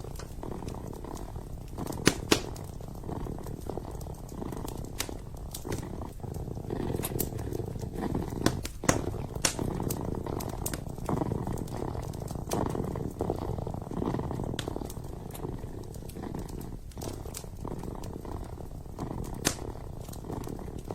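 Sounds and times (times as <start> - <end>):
kitten purring: 0.0 - 20.9
wood fire crackling and popping: 0.0 - 20.9.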